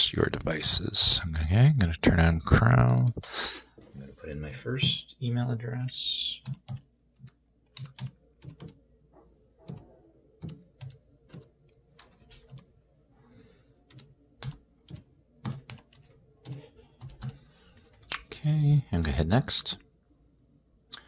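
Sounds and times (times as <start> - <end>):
typing on computer keyboard: 6.4 - 8.8, 9.7 - 12.7, 13.8 - 17.4.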